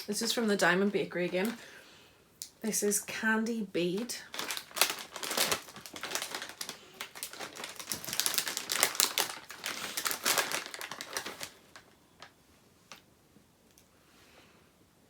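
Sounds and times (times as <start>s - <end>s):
plastic packaging crinkling: 0.0s - 1.7s, 3.8s - 13.0s.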